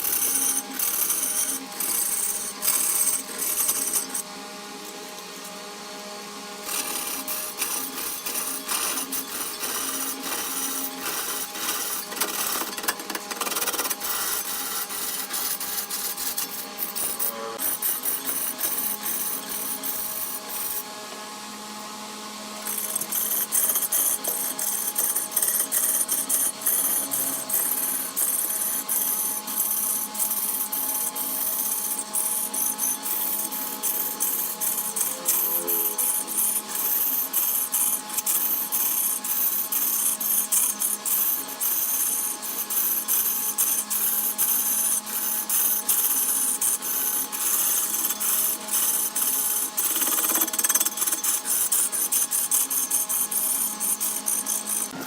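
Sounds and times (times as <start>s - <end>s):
tool scraping and crackling wood: 0.0s - 4.2s, 6.6s - 20.9s
woodworking machine motor hum: 0.0s - 42.7s.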